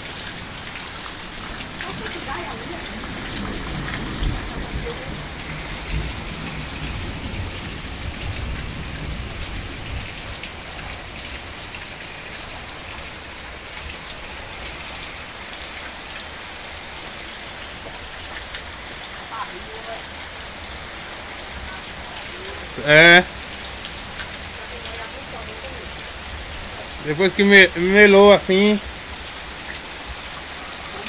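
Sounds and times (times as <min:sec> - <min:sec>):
heavy rain on foliage: 0:00.0 - 0:31.0.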